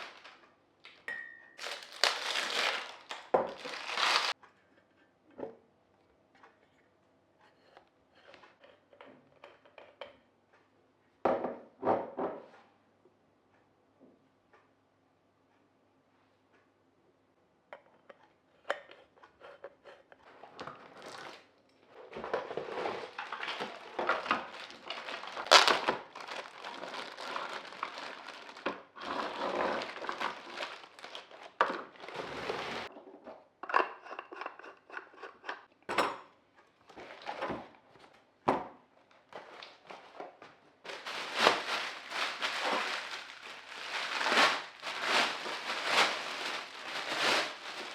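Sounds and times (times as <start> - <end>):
packaging rustling and crinkling: 0.0 - 1.0, 1.6 - 4.4, 20.7 - 21.4, 22.2 - 32.9, 40.9 - 47.9
items clicking and clinking: 18.0 - 32.1, 39.3 - 47.9.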